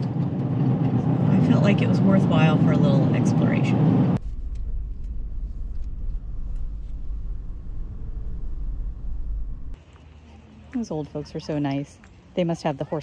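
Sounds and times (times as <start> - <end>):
road and engine rumble in car cabin: 0.0 - 9.8.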